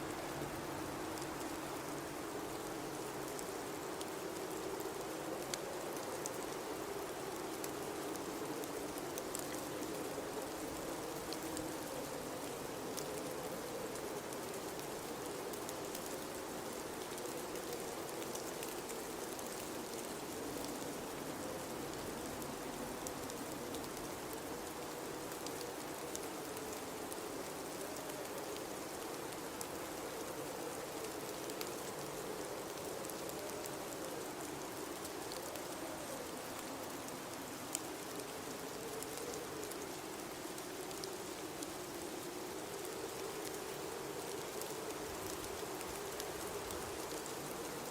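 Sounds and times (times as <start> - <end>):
hiss of wind-driven snow: 0.0 - 47.9
faint ticks: 17.0 - 47.9.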